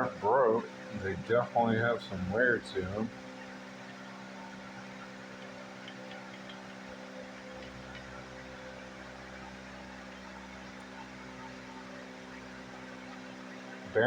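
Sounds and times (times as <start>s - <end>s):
electrical hum with hiss: 0.0s - 14.0s
faint small ticks: 4.7s - 8.2s.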